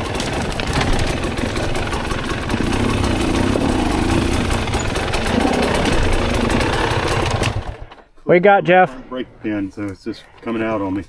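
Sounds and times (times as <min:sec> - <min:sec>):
dirt bike engine running: 0:00.0 - 0:08.0.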